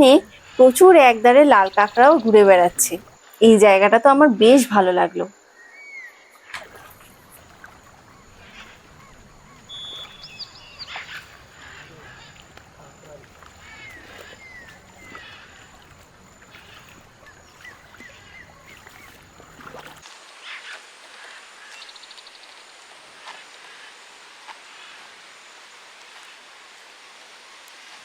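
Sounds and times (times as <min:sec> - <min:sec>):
birds chirping: 0:00.0 - 0:03.2, 0:04.5 - 0:20.0
bird trill: 0:07.2 - 0:12.4.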